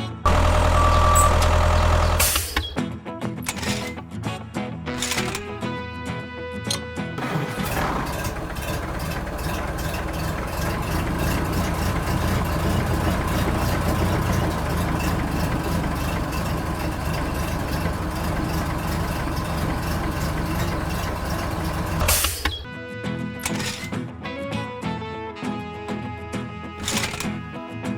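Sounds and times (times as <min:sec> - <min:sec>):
rumbling rattling engine noise: 0:00.0 - 0:02.8, 0:03.5 - 0:04.0, 0:07.2 - 0:22.7, 0:23.4 - 0:24.0, 0:26.8 - 0:27.4.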